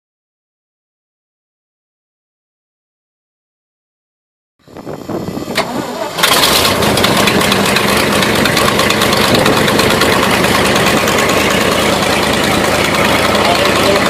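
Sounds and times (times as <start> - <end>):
engine running steadily: 4.6 - 14.0.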